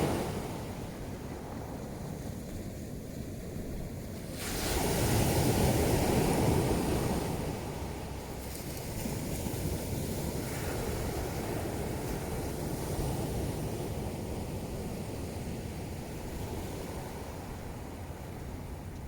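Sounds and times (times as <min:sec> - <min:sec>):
steady surf: 0:00.0 - 0:02.0.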